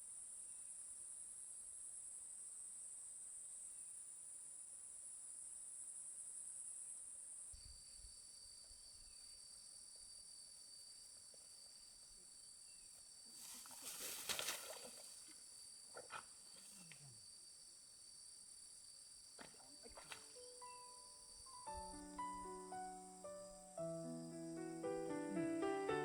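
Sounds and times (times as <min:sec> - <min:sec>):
crickets chirring: 0:00.0 - 0:26.0
brief rustle or scrape: 0:13.4 - 0:15.2.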